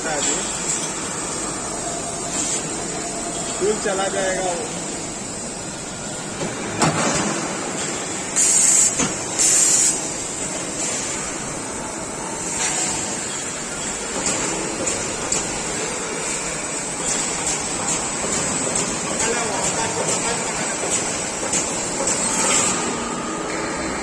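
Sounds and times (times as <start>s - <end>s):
production line machinery running: 0.0s - 24.0s.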